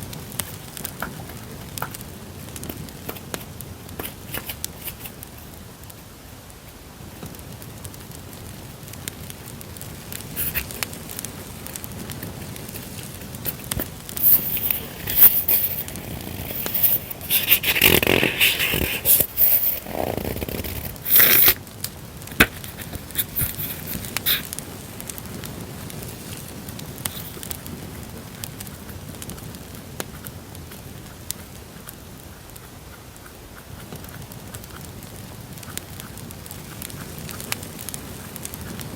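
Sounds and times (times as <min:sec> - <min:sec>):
campfire crackling: 0:00.0 - 0:38.9
paper crinkling and scraping: 0:03.1 - 0:05.2, 0:12.7 - 0:21.6, 0:22.3 - 0:24.5.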